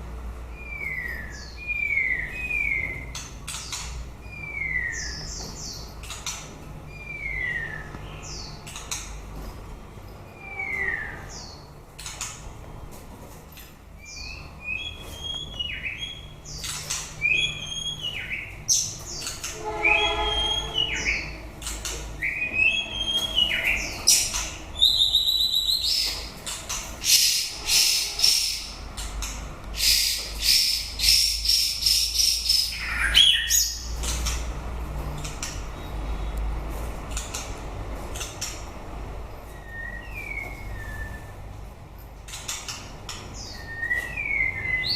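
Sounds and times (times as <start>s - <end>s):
bird singing whistled notes: 0.5s - 3.2s, 4.2s - 5.5s, 6.9s - 8.5s, 14.0s - 18.6s, 19.5s - 21.4s, 22.2s - 26.3s, 29.8s - 33.9s, 39.5s - 41.5s, 43.4s - 44.9s
harsh scratchy bird notes: 16.6s - 24.7s, 25.4s - 32.8s.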